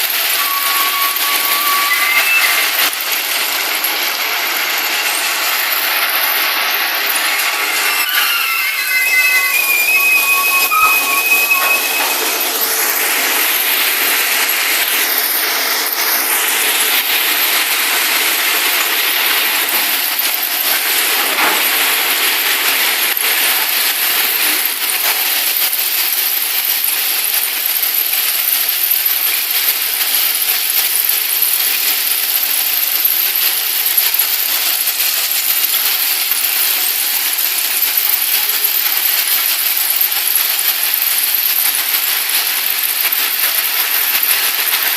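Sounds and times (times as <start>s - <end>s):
high squeal: 0.0s - 3.2s, 5.6s - 17.9s.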